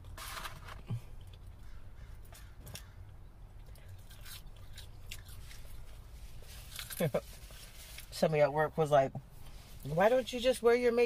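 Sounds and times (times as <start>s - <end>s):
low steady hum: 0.0s - 11.0s
person chewing food: 0.8s - 6.9s.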